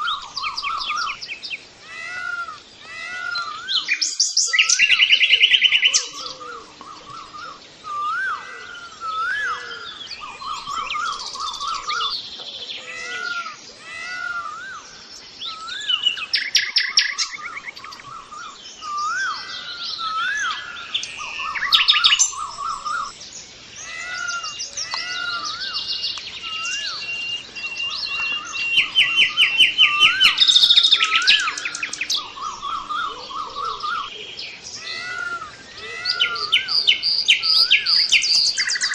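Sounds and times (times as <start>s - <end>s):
birds whistling: 0.0s - 38.9s
rapid bird trills: 0.0s - 38.9s.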